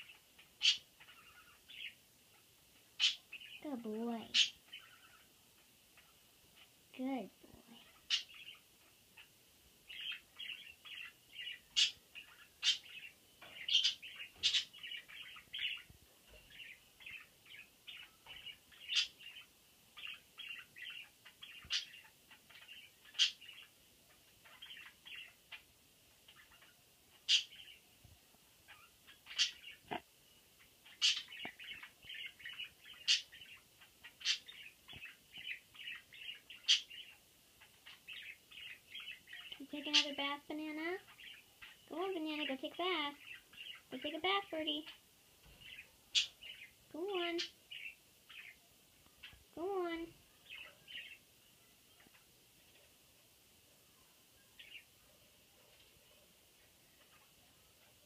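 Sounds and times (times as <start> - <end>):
budgerigars chattering: 0.0 - 2.0, 3.0 - 5.3, 9.9 - 15.9, 17.9 - 23.7, 26.3 - 27.8, 30.8 - 45.0.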